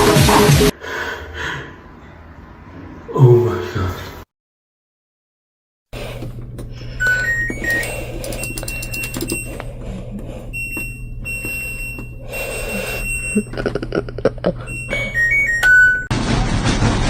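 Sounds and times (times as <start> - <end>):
low hum: 6.0 - 17.0
electronic alarm beeps: 7.0 - 9.7, 10.3 - 13.8, 14.6 - 16.1
high-pitched alarm tones: 7.0 - 13.8, 14.5 - 16.1
scattered clicks: 7.4 - 12.2.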